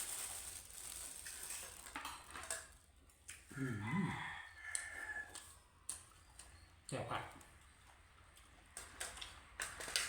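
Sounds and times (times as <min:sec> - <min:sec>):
eating noises with clicks: 0:03.1 - 0:03.5, 0:04.7 - 0:10.0.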